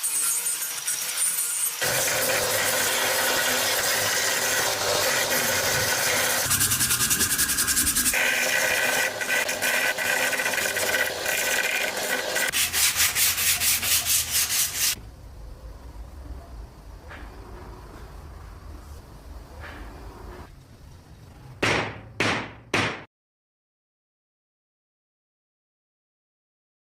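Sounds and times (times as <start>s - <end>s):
sanding metal scrubbing: 0.0s - 15.0s.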